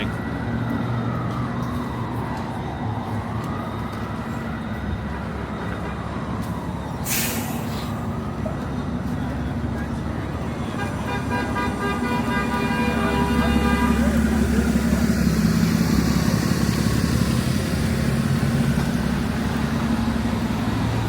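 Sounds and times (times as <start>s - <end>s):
vehicle horn long blast: 10.8s - 14.2s
passing engines drone: 11.5s - 21.0s.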